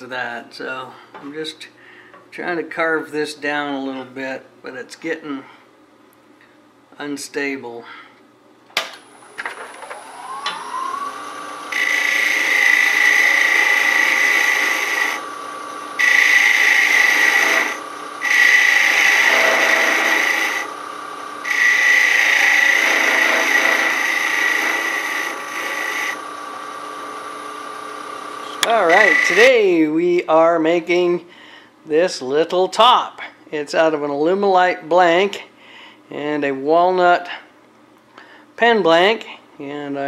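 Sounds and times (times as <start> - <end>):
wood lathe whining: 9.6 - 29.6
turning tool cutting wood: 10.2 - 29.6.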